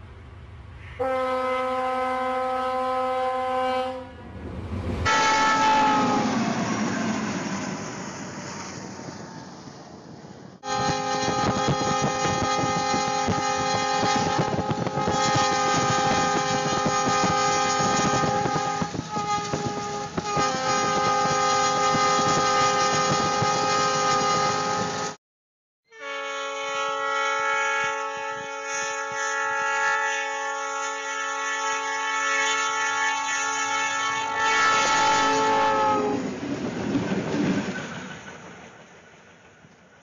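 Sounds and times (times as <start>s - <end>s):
locomotive air horn chord: 1.0s - 4.3s, 5.0s - 6.5s, 10.6s - 25.2s, 25.9s - 36.3s
rushing noise: 4.0s - 11.7s.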